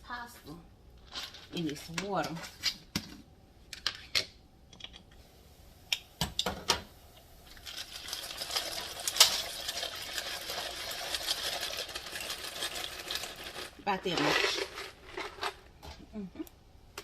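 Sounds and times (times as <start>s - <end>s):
dry pasta rattling into a pot: 7.5s - 15.7s.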